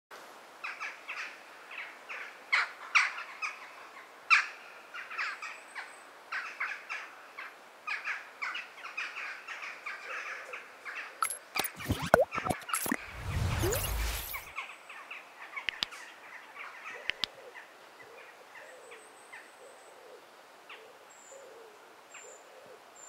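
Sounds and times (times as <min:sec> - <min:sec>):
sharp clicks: 0:11.2 - 0:14.5.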